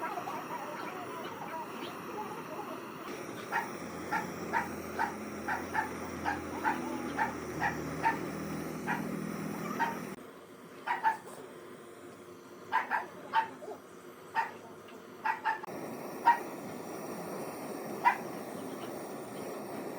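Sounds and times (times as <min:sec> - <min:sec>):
steady low hum: 0:00.0 - 0:19.9
dog barking: 0:03.2 - 0:10.2, 0:10.8 - 0:11.4, 0:12.7 - 0:14.6, 0:15.2 - 0:16.6, 0:18.0 - 0:18.4.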